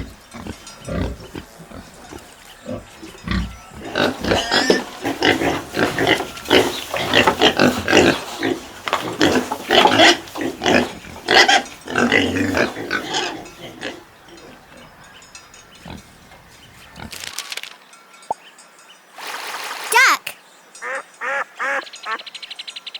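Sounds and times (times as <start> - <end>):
pigs grunting and squealing: 0.0 - 15.2.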